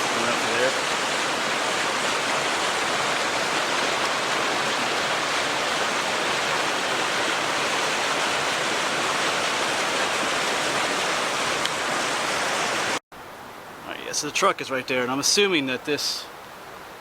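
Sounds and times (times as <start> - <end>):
fast-flowing creek rushing: 0.0 - 17.0.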